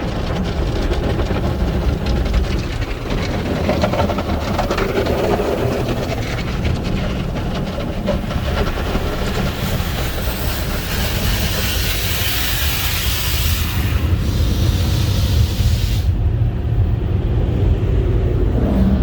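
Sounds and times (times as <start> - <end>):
rapid clattering: 0.0 - 12.2
car wash equipment rumbling: 0.0 - 19.0
loud hiss: 10.2 - 16.2.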